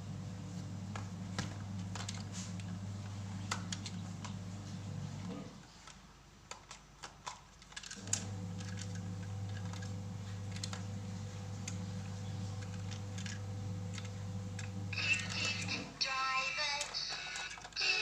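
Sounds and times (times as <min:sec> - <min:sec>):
steady low hum: 0:00.0 - 0:05.7, 0:08.0 - 0:16.0
plastic toy truck clicks: 0:05.8 - 0:08.9, 0:12.6 - 0:18.0.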